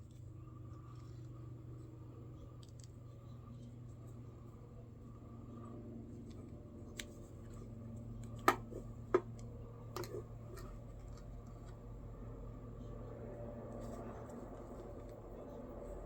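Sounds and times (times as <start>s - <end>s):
steady low hum: 0.0s - 16.0s
sharp clicks and taps of tools: 8.2s - 10.7s.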